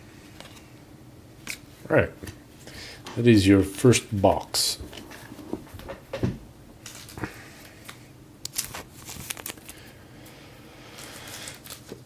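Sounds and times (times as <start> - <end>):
card stock clicking and rustling: 6.8 - 9.8, 11.0 - 12.0
wrappers rustling: 6.8 - 10.0, 10.8 - 12.0.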